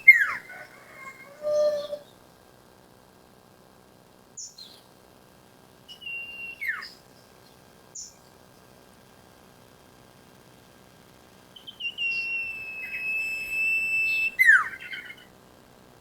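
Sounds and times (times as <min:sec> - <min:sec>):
bird whistling: 0:00.0 - 0:02.1, 0:05.9 - 0:07.0, 0:11.6 - 0:15.3.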